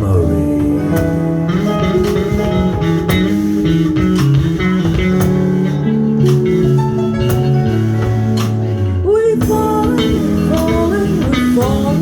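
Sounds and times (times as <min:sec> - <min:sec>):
drums with cymbal strokes: 0:00.0 - 0:12.0
electric bass line: 0:00.0 - 0:12.0
guitar: 0:00.0 - 0:12.0.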